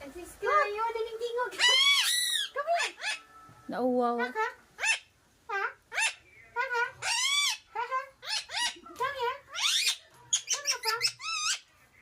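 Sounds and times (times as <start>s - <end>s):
parrot squawking: 1.5s - 3.4s, 4.1s - 11.7s.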